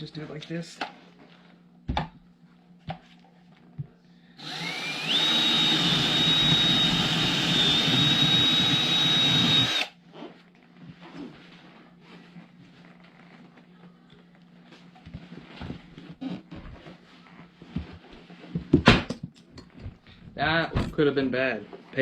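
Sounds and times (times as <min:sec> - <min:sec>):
power drill whining: 0:04.4 - 0:09.9.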